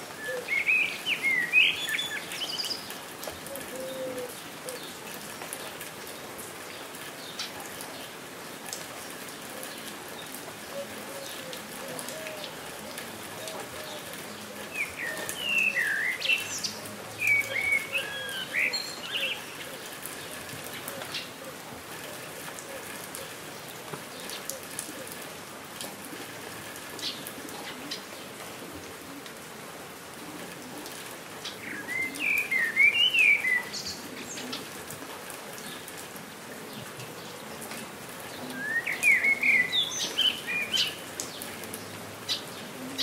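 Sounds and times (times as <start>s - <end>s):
steady rain: 0.0s - 43.0s.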